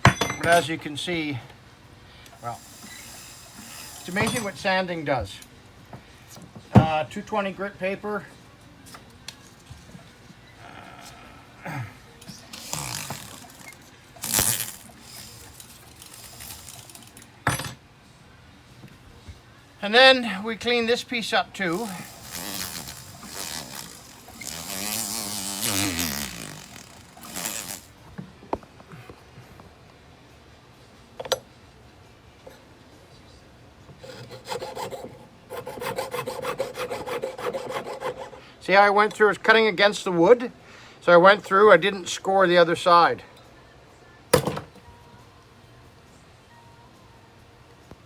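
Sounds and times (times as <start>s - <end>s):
small metal tools clinking: 0.0s - 0.8s, 3.8s - 4.7s.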